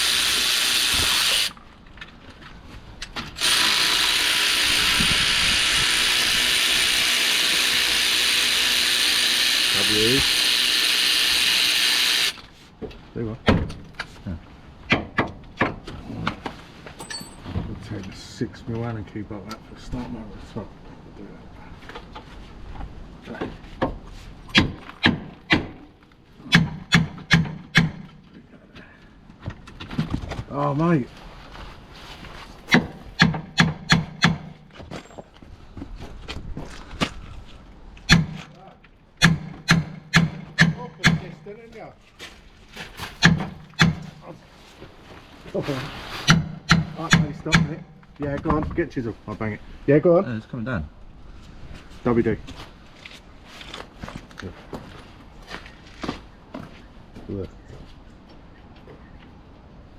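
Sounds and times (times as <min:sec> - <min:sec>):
sharp knocks: 0:23.8 - 0:25.9, 0:26.5 - 0:28.2, 0:32.7 - 0:34.7, 0:39.2 - 0:41.4, 0:43.1 - 0:44.2, 0:46.3 - 0:48.0.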